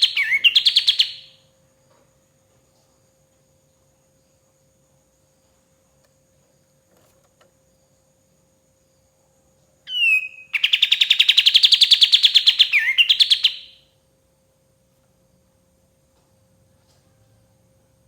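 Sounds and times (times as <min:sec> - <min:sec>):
bird whistling and trilling: 0:00.0 - 0:01.4, 0:09.9 - 0:13.8
faint steady hum: 0:00.0 - 0:18.0.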